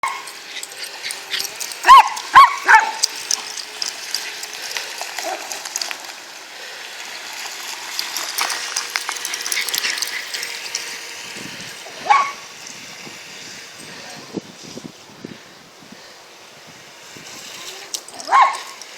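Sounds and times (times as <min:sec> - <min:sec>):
dogs barking: 0:00.0 - 0:05.6, 0:12.0 - 0:12.4, 0:18.1 - 0:18.8.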